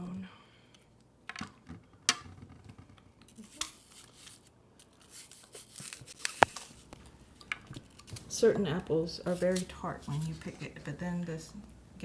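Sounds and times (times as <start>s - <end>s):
apple crunching: 3.2s - 8.5s.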